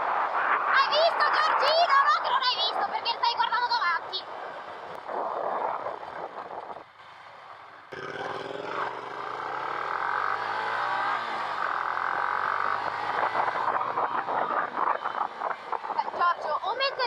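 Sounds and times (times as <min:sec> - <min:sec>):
wind rush: 0:00.0 - 0:07.0, 0:11.3 - 0:17.0
motorcycle engine revs falling: 0:07.9 - 0:16.2.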